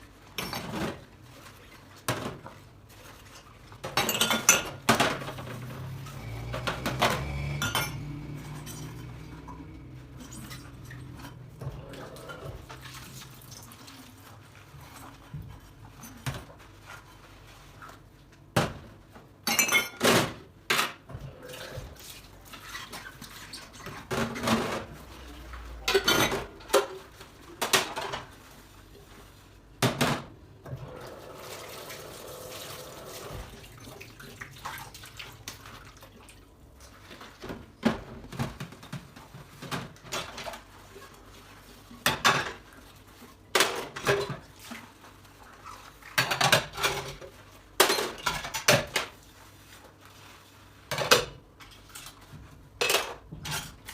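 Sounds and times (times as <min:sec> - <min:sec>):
dishes and cutlery clinking: 0:00.3 - 0:01.0, 0:03.2 - 0:12.9, 0:19.4 - 0:21.0, 0:22.6 - 0:28.4, 0:52.8 - 0:53.9
running water: 0:30.7 - 0:37.2.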